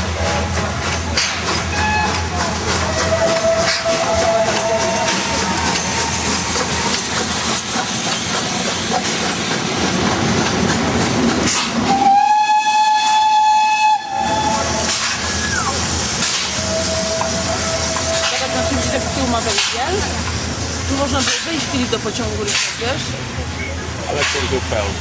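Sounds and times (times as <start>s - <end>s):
steam locomotive hissing: 0.0s - 25.0s
steam whistle blast: 1.7s - 2.2s, 2.9s - 6.1s, 11.8s - 15.8s, 16.4s - 19.2s.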